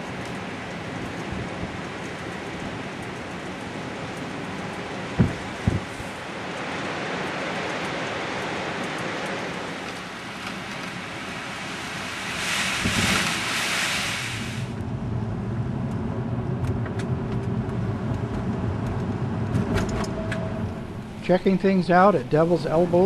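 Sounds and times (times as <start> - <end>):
light ticks: 0.0 - 5.2, 6.4 - 11.0
traffic on wet road: 0.0 - 20.1
storm wind: 0.0 - 23.0.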